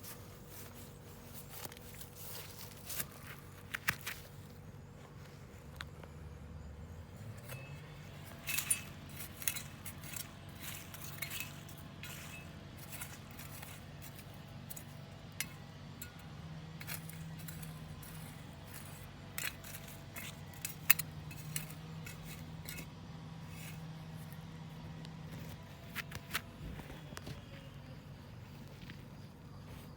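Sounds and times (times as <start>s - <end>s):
steady low hum: 0.0s - 29.9s
small hard objects clinking: 7.2s - 24.0s.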